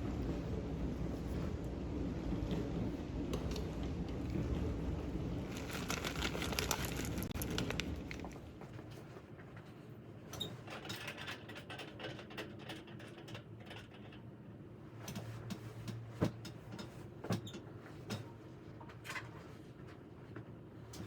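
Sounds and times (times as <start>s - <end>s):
objects being handled: 5.4s - 8.5s.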